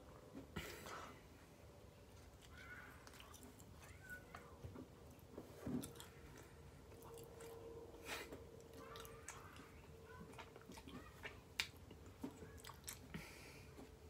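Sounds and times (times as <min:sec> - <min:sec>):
person chewing food: 0:02.2 - 0:04.0, 0:05.1 - 0:14.0.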